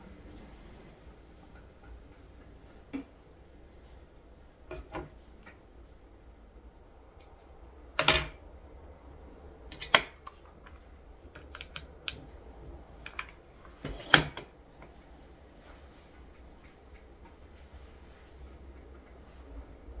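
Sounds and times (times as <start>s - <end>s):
small clicks and taps: 9.7s - 12.3s.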